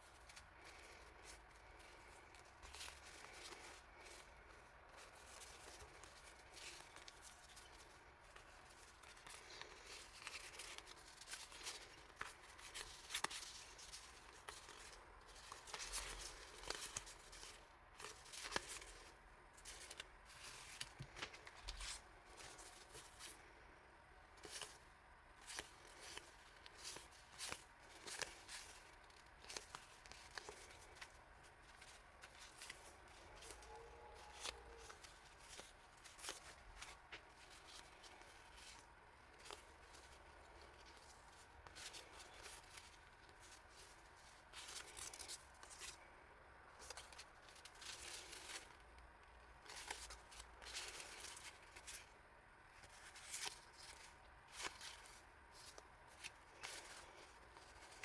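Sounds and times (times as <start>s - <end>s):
paper and plastic rustling: 0.0s - 23.7s, 24.3s - 52.1s, 52.7s - 58.0s.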